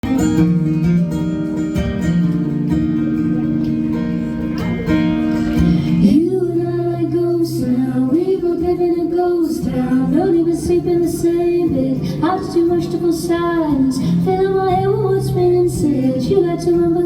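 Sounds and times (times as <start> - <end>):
acoustic guitar strumming: 0.0 - 17.0
woman singing long held notes: 5.9 - 17.0.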